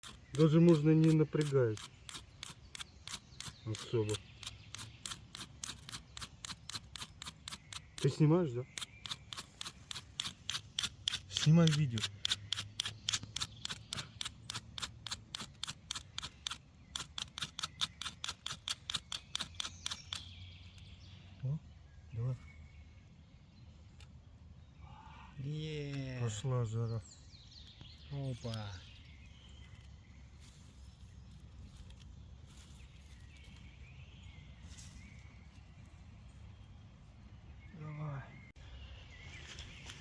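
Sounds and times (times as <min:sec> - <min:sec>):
striker scraping fire-starter rod: 0:00.0 - 0:20.2.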